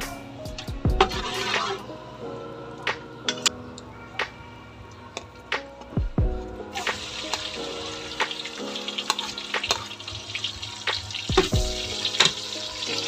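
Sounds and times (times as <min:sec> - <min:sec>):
metal spatula scraping wok: 0:01.0 - 0:01.9
garlic and onion sizzling in oil: 0:06.7 - 0:13.0.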